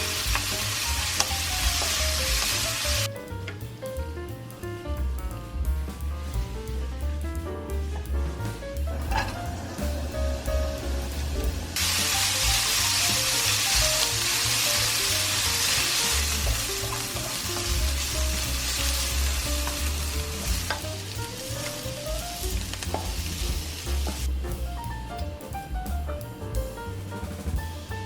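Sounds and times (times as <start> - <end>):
food sizzling in a pan: 0.0 - 3.1, 11.8 - 24.3.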